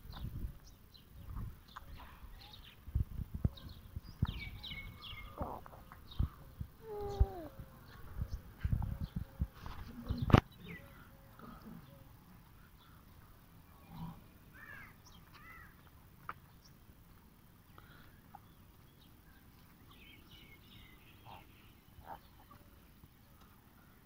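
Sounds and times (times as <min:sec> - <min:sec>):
quiet outdoor background noise: 0:00.0 - 0:24.0
faint bird chirps: 0:03.4 - 0:09.2, 0:19.3 - 0:24.0.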